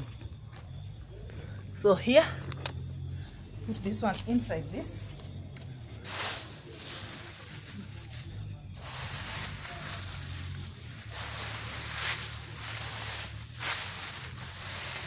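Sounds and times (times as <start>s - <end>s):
dry leaves rustling: 3.2s - 15.0s.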